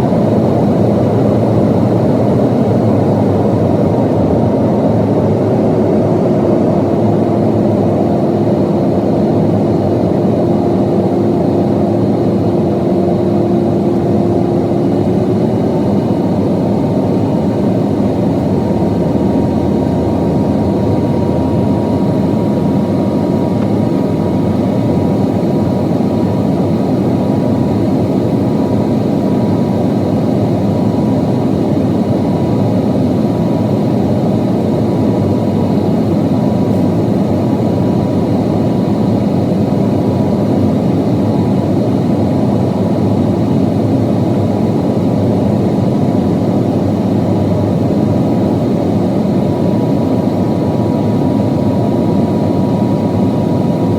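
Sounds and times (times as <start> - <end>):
steady hum: 0.0 - 29.1
jet engines droning: 0.0 - 53.9.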